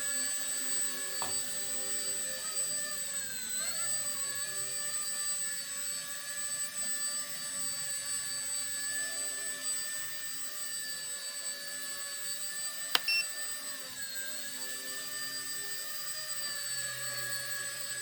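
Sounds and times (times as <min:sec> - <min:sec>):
toy helicopter rotor whine: 0:00.0 - 0:18.0
short click: 0:13.0 - 0:13.2.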